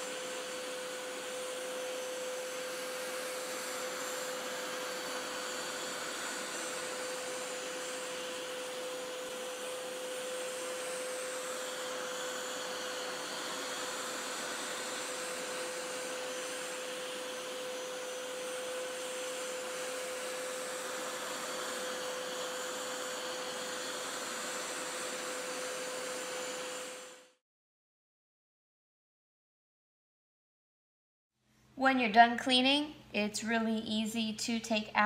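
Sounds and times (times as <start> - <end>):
carpet cleaner running: 0.0 - 27.4.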